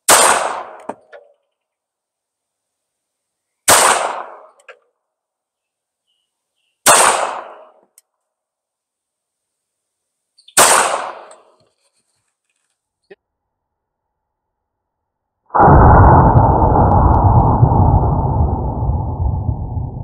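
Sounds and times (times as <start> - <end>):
pistol shots: 0.1 - 1.1, 3.7 - 4.6, 6.8 - 7.8, 10.5 - 11.6.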